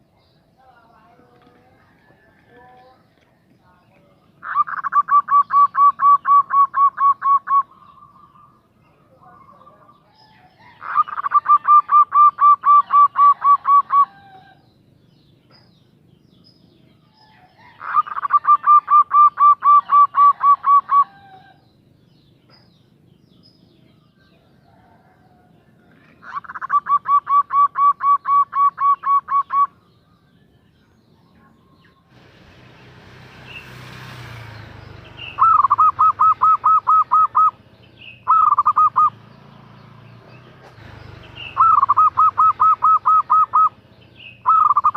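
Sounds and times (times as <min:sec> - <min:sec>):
dove stuttering coos: 0:04.4 - 0:08.6, 0:10.3 - 0:14.6, 0:17.5 - 0:21.6, 0:24.5 - 0:29.8, 0:33.4 - 0:39.3, 0:40.6 - 0:44.9.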